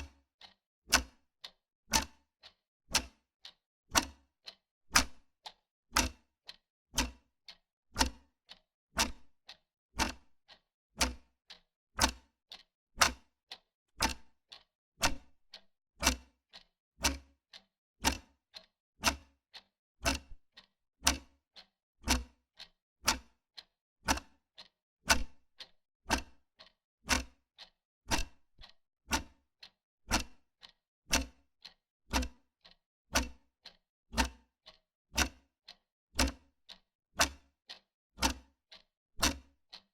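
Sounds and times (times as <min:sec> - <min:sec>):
wall clock ticking: 0:00.4 - 0:01.1, 0:01.9 - 0:02.2, 0:02.9 - 0:03.2, 0:03.9 - 0:04.2, 0:05.0 - 0:06.2, 0:07.0 - 0:07.2, 0:10.0 - 0:11.3, 0:12.0 - 0:13.2, 0:14.0 - 0:31.3, 0:32.1 - 0:39.9.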